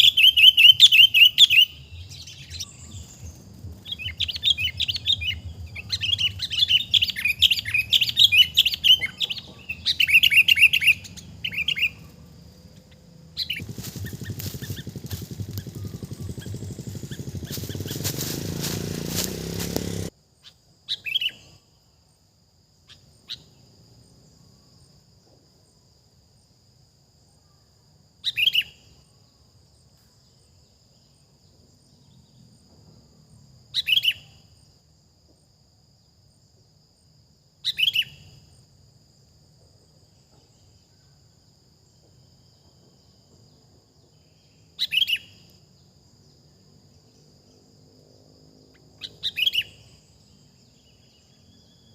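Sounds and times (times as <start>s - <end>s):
high insect drone: 0.0s - 51.9s
loud rumbling noise: 13.1s - 20.1s.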